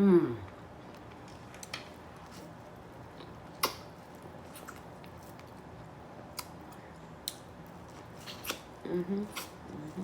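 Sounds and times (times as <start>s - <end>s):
person chewing: 3.1s - 9.8s.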